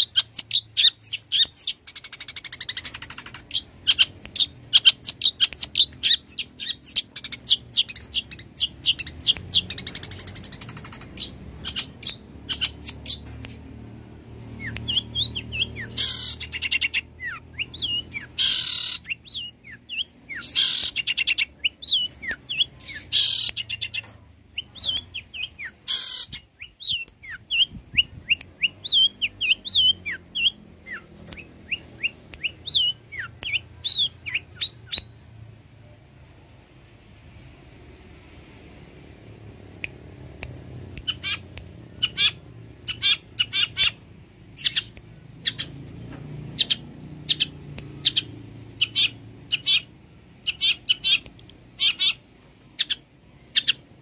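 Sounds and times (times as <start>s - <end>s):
bird chirping and whistling: 0.0s - 13.6s, 14.5s - 35.1s, 41.0s - 41.4s, 42.0s - 44.0s, 44.6s - 45.7s, 46.6s - 51.2s, 51.8s - 52.2s, 52.8s - 53.8s
harsh rasping bird calls: 14.6s - 27.7s, 41.0s - 41.4s, 42.0s - 44.0s, 46.6s - 51.2s, 51.8s - 52.2s.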